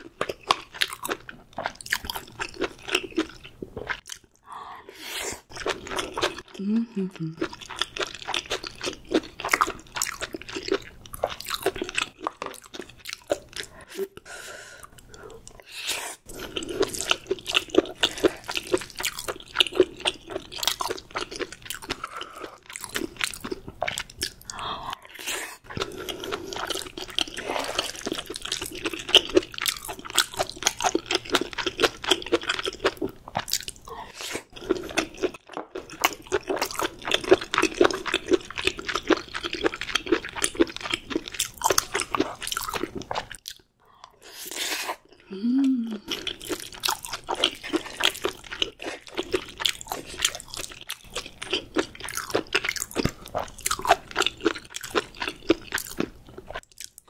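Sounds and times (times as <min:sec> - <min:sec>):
crisp chewing and crunching: 0:00.0 - 0:04.4, 0:07.4 - 0:13.8, 0:16.3 - 0:43.7, 0:46.0 - 0:57.0
wet mouth sounds: 0:05.0 - 0:07.8, 0:44.4 - 0:57.0.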